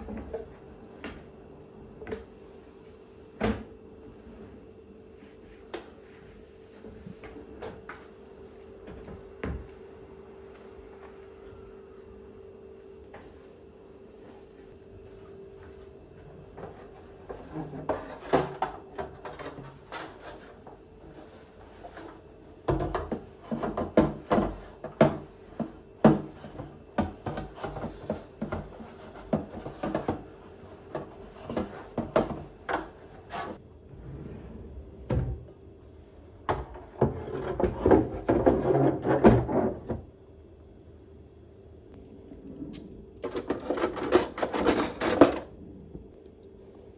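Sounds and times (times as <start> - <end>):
faint steady hum: 39.6 - 46.9.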